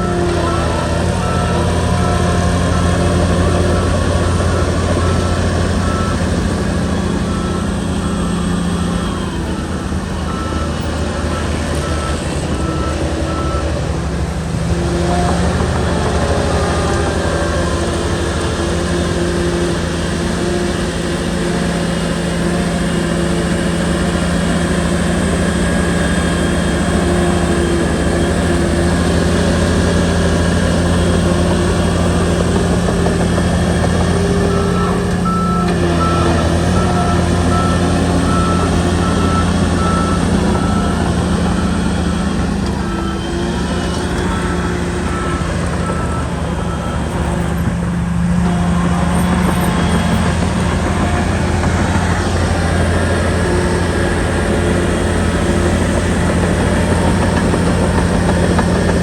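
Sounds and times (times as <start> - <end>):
bulldozer diesel engine running: 0.0 - 59.0
reversing alarm beeping: 0.0 - 59.0.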